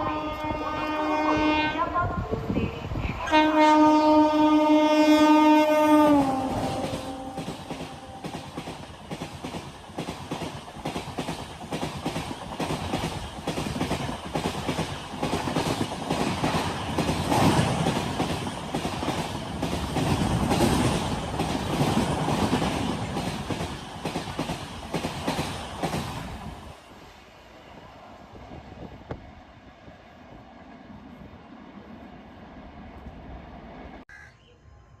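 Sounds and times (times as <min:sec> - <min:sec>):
train wheels clattering: 0:06.5 - 0:26.7.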